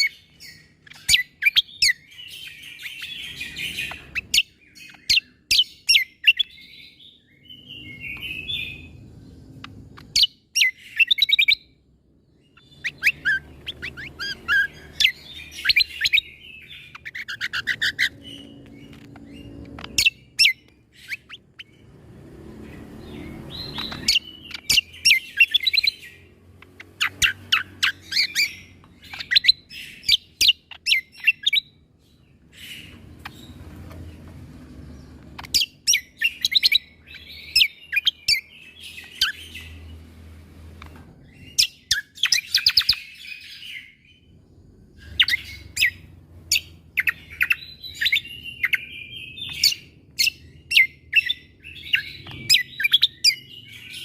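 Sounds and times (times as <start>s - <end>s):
songbird singing: 0.0s - 54.0s.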